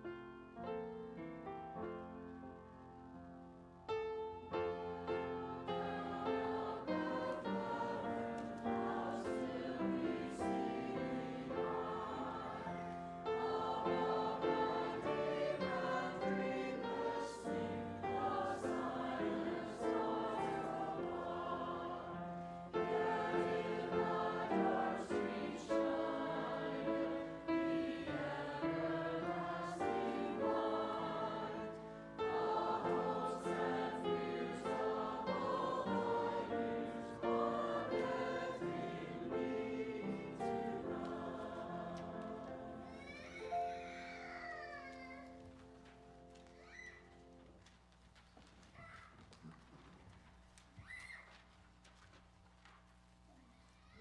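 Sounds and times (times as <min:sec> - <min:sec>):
choir singing: 0:04.4 - 0:43.2.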